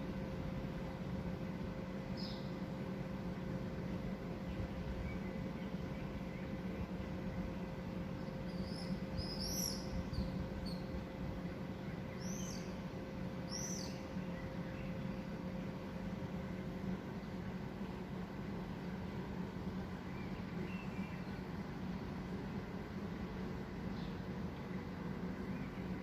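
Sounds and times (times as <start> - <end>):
bird chirping: 8.5 - 10.9, 12.1 - 12.8, 13.5 - 15.0.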